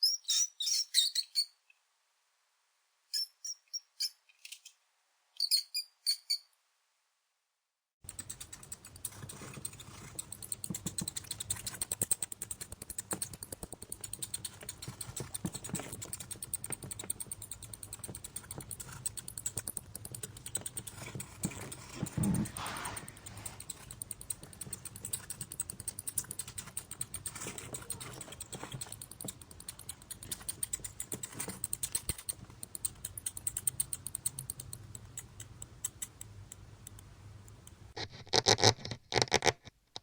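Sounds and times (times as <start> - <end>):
high squeaks: 5.4 - 6.5, 14.3 - 25.4
rapid small clicks and scratches: 8.0 - 40.0.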